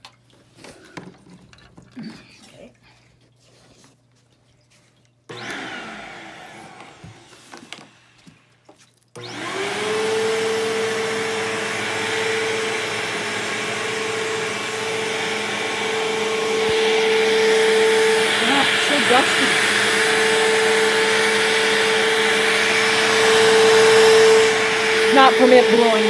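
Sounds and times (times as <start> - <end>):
vacuum cleaner motor whining: 5.3 - 8.5, 9.2 - 26.0.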